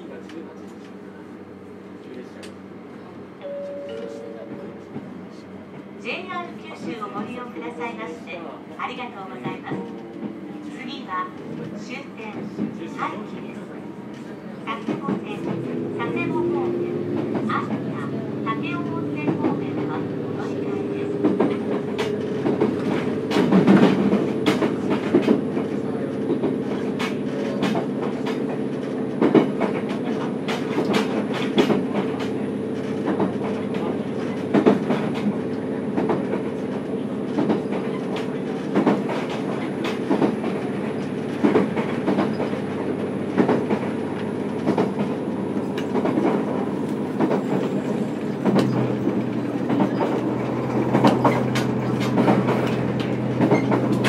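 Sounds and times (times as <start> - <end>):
railcar drive humming: 0.0 - 54.0
rail-joint clicks: 14.1 - 54.0.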